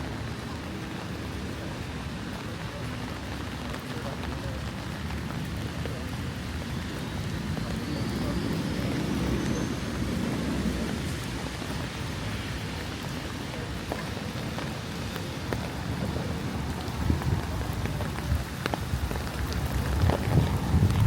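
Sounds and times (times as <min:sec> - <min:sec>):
raindrops ticking close by: 0:00.0 - 0:21.0
steady rain falling: 0:00.0 - 0:21.0.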